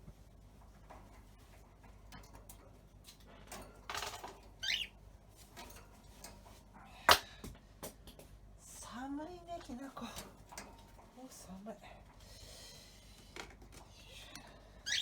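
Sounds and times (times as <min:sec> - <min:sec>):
bird chirp: 0:04.6 - 0:05.0, 0:14.8 - 0:15.0.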